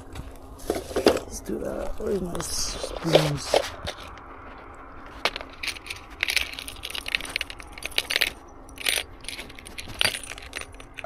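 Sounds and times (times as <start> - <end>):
metal fishing lures clinking: 5.3 - 11.0.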